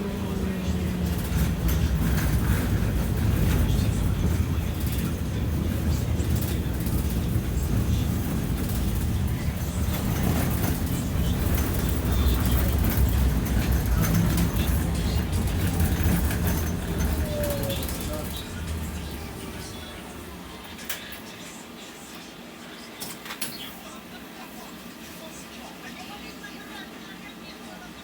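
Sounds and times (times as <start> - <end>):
tram rumbling on rails: 0.0 - 21.3.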